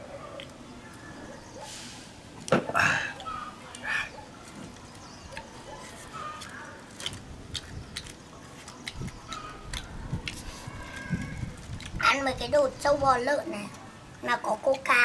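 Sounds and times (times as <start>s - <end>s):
person chewing meat: 6.1s - 12.0s.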